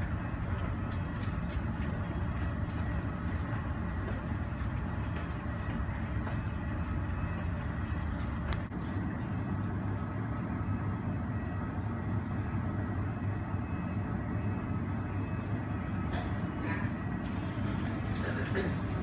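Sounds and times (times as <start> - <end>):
faint steady whine: 0.0 - 18.4
low rumble of airport apron noise: 0.0 - 19.0.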